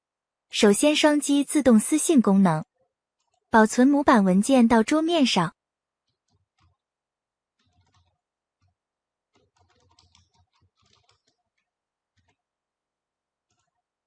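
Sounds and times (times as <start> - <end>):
faint keyboard typing: 2.7 - 3.6, 6.0 - 12.5, 13.4 - 14.0.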